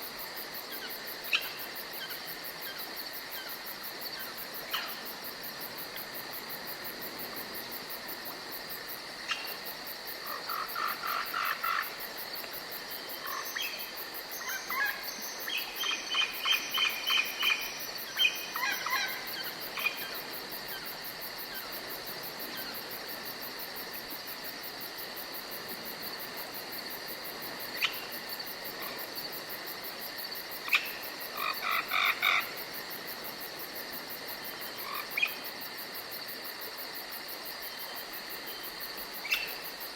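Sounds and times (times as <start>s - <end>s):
insects chirring: 0.0s - 39.9s
rapid repeated animal calls: 10.2s - 12.0s, 30.6s - 32.6s.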